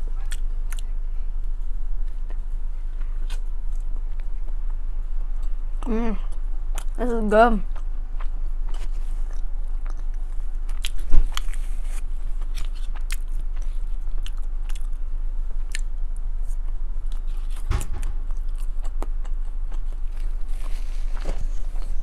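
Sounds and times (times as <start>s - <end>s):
chewing and wet mouth clicks: 9.3s - 11.5s
thump: 17.6s - 18.4s.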